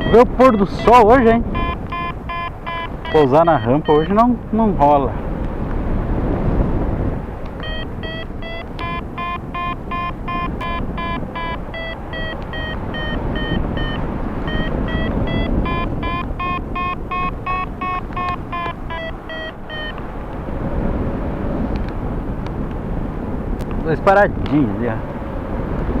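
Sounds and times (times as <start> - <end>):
variometer beeping: 0.0 - 4.3, 7.5 - 20.4
wind rushing past microphone: 0.0 - 26.0.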